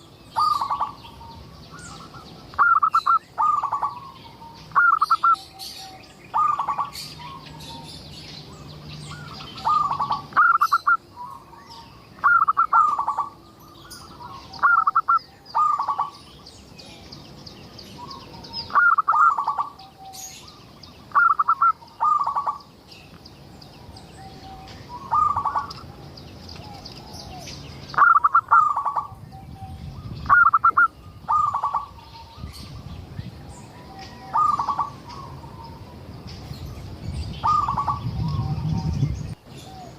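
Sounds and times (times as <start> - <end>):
dove cooing in trilled phrases: 0.4 - 1.4, 2.1 - 7.9, 9.1 - 11.6, 12.2 - 16.2, 18.0 - 20.2, 21.1 - 22.7, 24.9 - 25.9, 27.0 - 29.2, 30.2 - 32.5, 33.8 - 35.9, 37.4 - 38.6.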